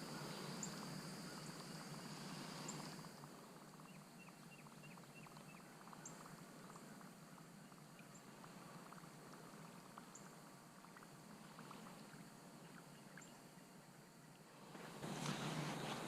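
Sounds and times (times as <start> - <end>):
faint water sounds: 0.0 - 16.0
small ticks: 2.6 - 13.4.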